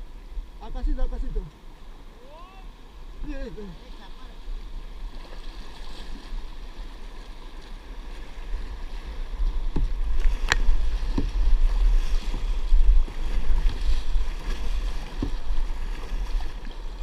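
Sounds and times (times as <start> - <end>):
wind buffeting microphone: 8.3 - 17.0.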